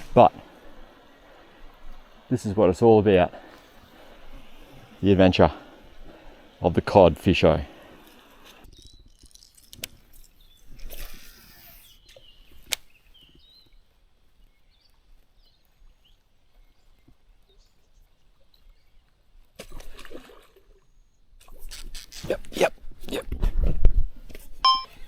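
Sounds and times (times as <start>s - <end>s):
sharp clicks: 8.0s - 12.9s
faint high chirps: 24.6s - 25.0s.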